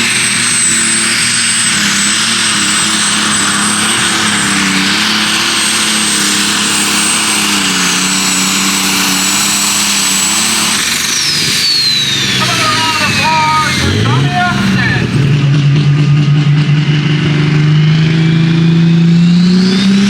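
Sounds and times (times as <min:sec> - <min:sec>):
high turbo whistle: 0:00.0 - 0:15.4
diesel engine running flat out: 0:00.0 - 0:20.0.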